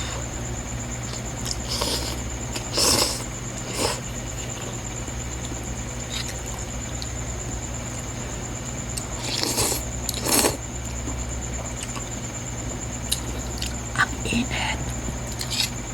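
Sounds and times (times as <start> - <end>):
faint high whine: 0.0 - 15.9
steady low hum: 0.0 - 15.9
noodle eating noises: 1.1 - 4.8, 9.0 - 10.6.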